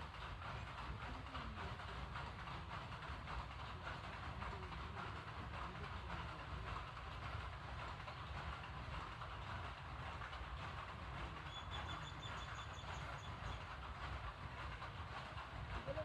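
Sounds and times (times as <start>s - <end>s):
bird singing a rapid trill: 11.5s - 13.6s.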